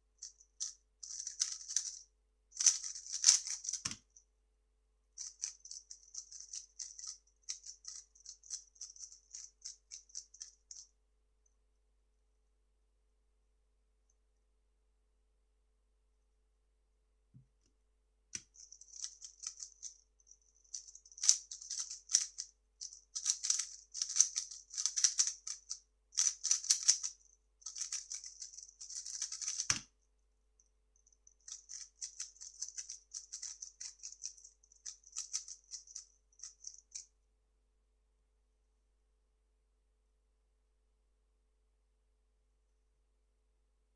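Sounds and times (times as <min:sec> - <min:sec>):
puzzle cube clicking: 0:01.0 - 0:02.0, 0:02.6 - 0:04.0, 0:23.2 - 0:25.4, 0:26.2 - 0:29.9, 0:31.5 - 0:34.3.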